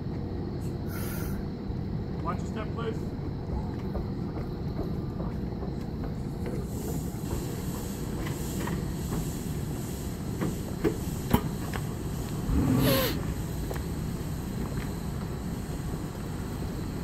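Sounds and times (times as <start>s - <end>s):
train low rumble: 0.0s - 17.0s
burst of hiss: 0.8s - 1.5s, 6.6s - 17.0s
footsteps knocking: 3.2s - 6.6s.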